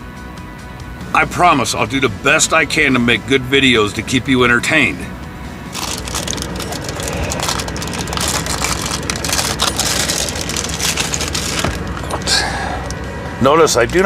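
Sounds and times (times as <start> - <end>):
steady low hum: 4.3 - 14.0
packaging crinkling: 5.7 - 12.3.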